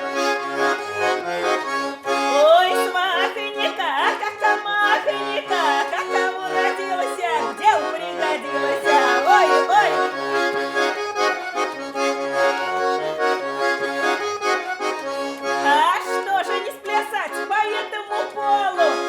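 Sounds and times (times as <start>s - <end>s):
button accordion playing: 0.0s - 19.0s
person singing: 2.3s - 11.3s, 15.6s - 19.0s.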